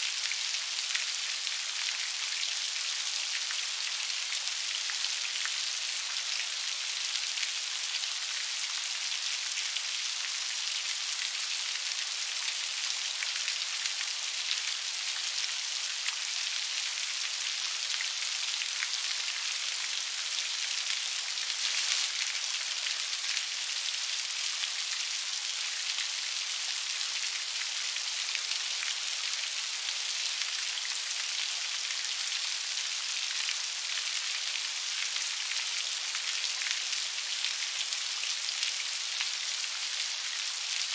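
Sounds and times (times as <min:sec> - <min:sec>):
steady rain pattering: 0:00.0 - 0:40.9.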